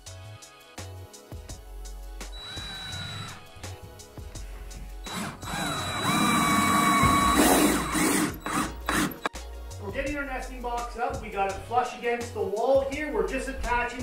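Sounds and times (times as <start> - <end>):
cordless drill driving screws: 2.4 - 3.7, 5.0 - 9.3.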